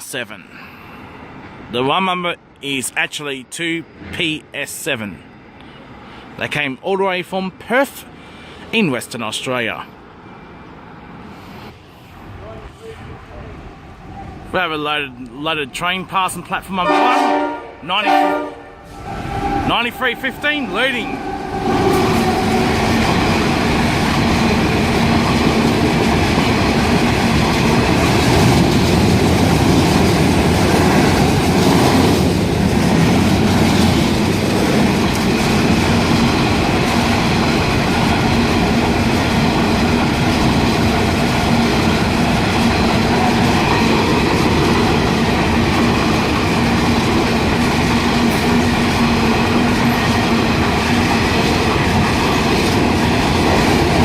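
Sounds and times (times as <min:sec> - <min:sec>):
freight train wheels clattering: 0:21.3 - 0:54.0.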